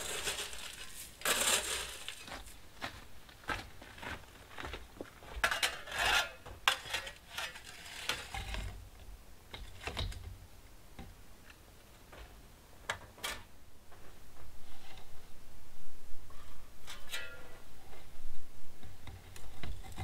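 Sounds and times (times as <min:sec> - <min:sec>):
light clicks and rustling scrapes: 0:00.0 - 0:02.6, 0:05.4 - 0:08.8, 0:18.8 - 0:20.0.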